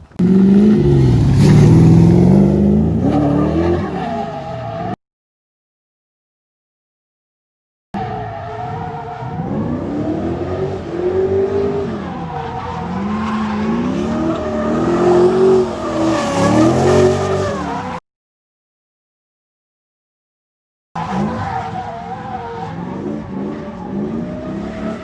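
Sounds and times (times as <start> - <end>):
car engine revving: 0.0 - 4.1, 8.1 - 18.0
tyres skidding and squealing: 0.0 - 5.0, 8.0 - 18.0, 21.0 - 25.0.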